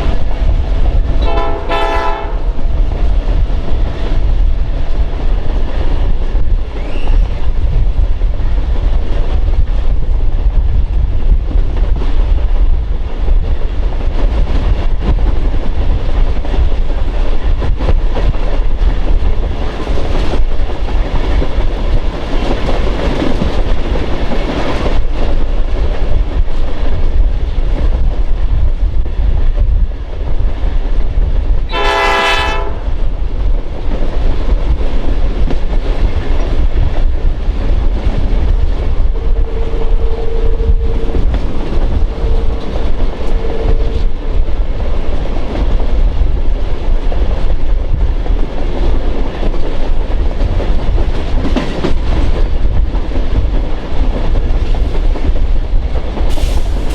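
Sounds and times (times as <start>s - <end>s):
train rumbling: 0.0s - 56.9s
locomotive horn blast: 1.2s - 2.6s, 31.7s - 32.9s, 39.1s - 41.5s, 42.2s - 44.2s.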